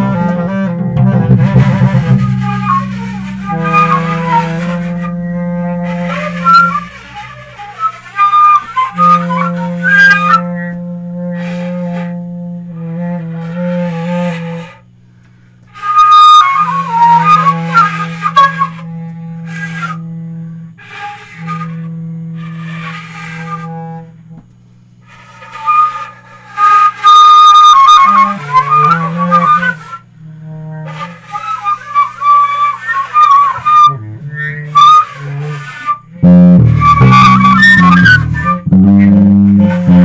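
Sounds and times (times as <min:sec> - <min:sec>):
low held bass note: 0:00.0 - 0:07.5, 0:36.1 - 0:40.0
flute melody: 0:00.0 - 0:14.7, 0:15.8 - 0:24.1, 0:25.1 - 0:40.0.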